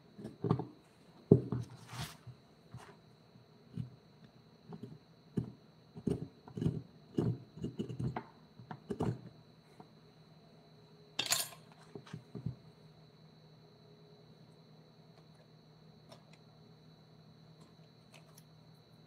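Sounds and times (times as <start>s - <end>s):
knocks of hard objects: 0.2s - 1.7s.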